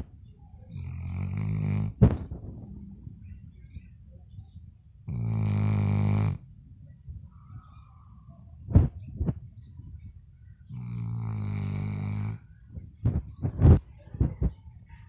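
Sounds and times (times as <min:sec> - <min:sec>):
dog snoring: 0:00.7 - 0:03.2, 0:05.1 - 0:06.4, 0:10.7 - 0:12.5.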